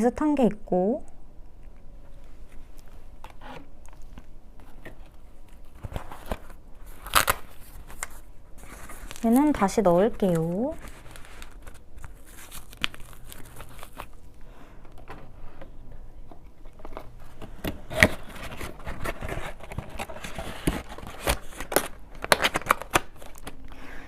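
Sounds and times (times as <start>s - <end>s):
packaging rustling and crinkling: 2.2s - 14.3s, 16.7s - 23.6s.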